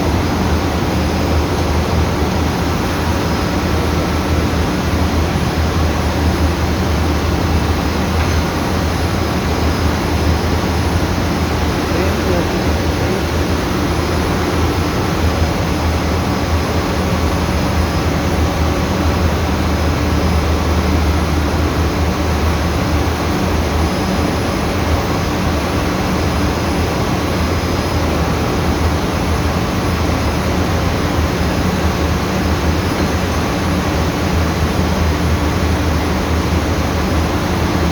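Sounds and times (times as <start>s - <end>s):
air compressor running: 0.0s - 24.0s.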